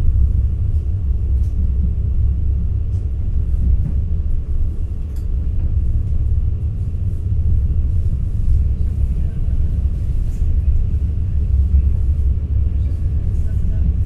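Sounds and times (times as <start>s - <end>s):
train rumbling along track: 0.0s - 14.0s
faint light ticks: 5.0s - 5.3s.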